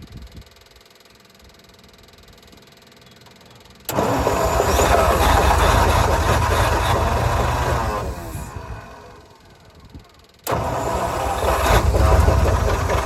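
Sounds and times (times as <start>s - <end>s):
starter cranking truck engine: 3.7s - 13.0s.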